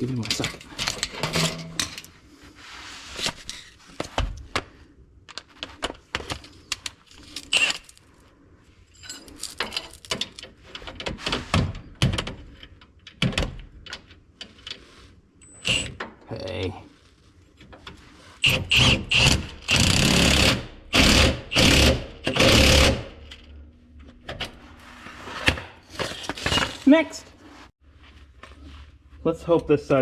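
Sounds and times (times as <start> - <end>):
hand tools clinking on metal bolt: 0.0 - 2.1.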